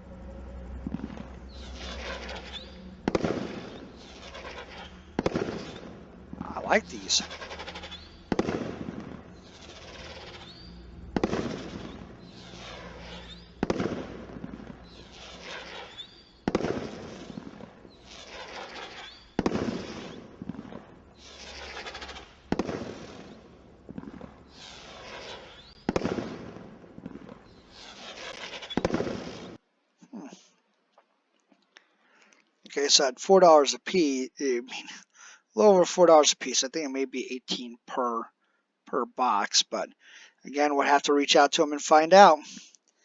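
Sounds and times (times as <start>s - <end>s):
firework reports with crackle: 0.6s - 29.6s, 40.5s - 42.7s.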